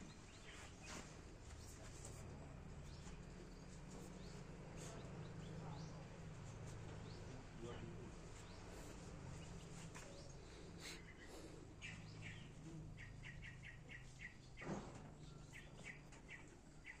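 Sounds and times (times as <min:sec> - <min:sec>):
faint low hum: 0:00.0 - 0:17.0
small bird chirping: 0:08.4 - 0:14.6, 0:15.2 - 0:17.0.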